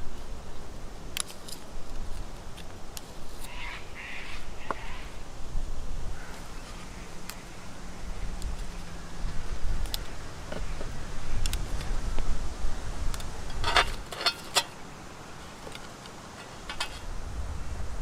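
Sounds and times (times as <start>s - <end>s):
wind buffeting microphone: 3.2s - 14.2s, 16.5s - 18.0s.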